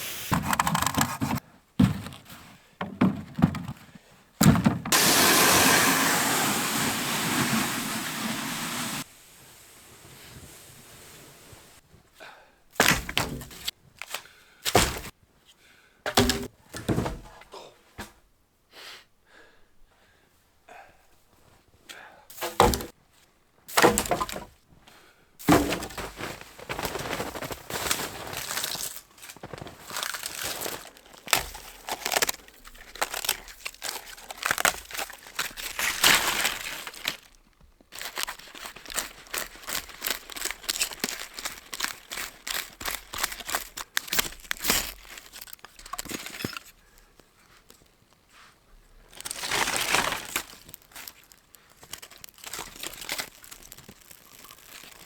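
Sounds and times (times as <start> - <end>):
wood crackling and crunching: 25.5 - 47.9, 48.9 - 55.0
branches snapping: 49.2 - 55.0.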